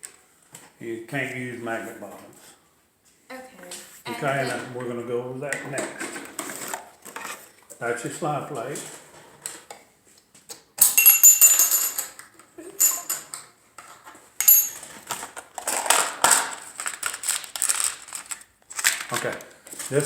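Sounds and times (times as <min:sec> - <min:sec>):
small metal parts clinking: 0:10.8 - 0:12.2, 0:12.8 - 0:13.4, 0:14.4 - 0:15.9.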